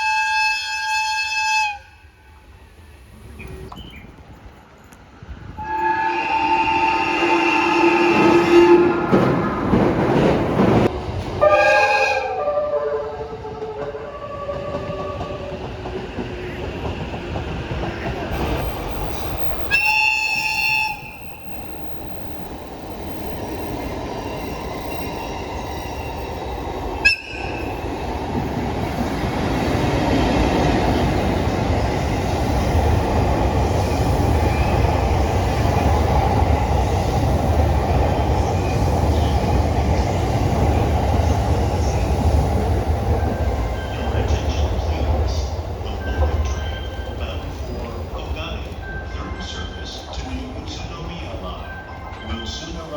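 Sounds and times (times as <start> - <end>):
train warning horn: 0.0 - 2.3, 5.6 - 9.2, 11.4 - 15.5, 19.7 - 21.3, 27.0 - 27.6
electric train running on rails: 0.0 - 52.9.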